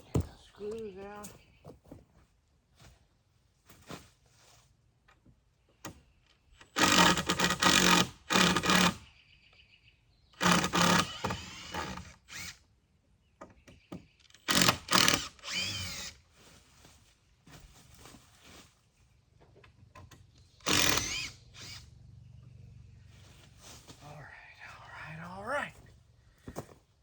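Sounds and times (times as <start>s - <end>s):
power drill backing out screws: 10.4s - 12.6s, 14.2s - 16.2s, 20.6s - 21.8s.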